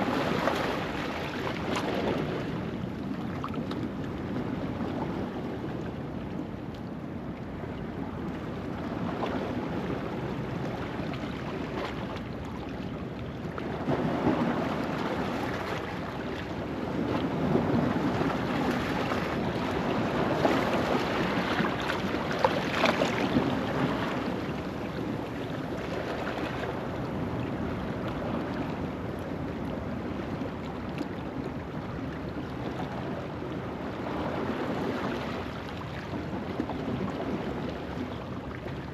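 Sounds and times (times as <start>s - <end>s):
waves washing over rocks: 0.0s - 2.9s, 13.6s - 29.2s.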